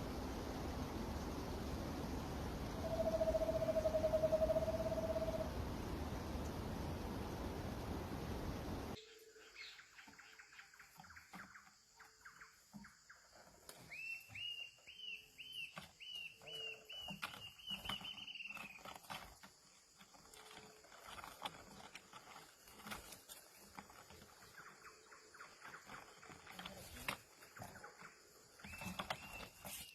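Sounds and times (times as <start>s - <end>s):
bird calling repeated notes: 2.8s - 5.6s
steady rushing noise: 4.7s - 9.0s.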